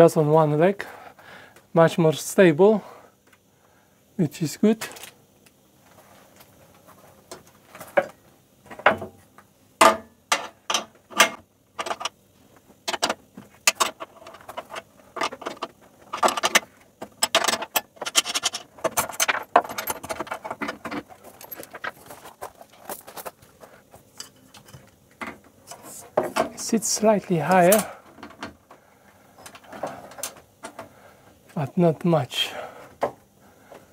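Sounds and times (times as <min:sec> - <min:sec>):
metal tools clinking and rattling: 0:17.2 - 0:23.2.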